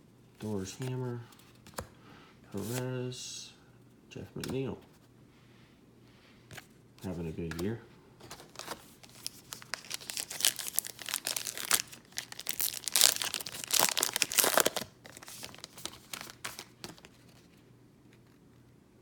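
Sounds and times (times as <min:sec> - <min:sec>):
plastic wrapper tearing and crinkling: 0:08.4 - 0:17.2.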